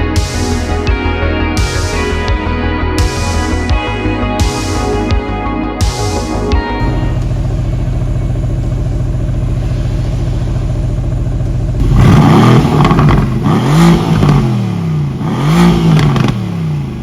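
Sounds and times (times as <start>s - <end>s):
car engine idling and revving: 6.8s - 17.0s.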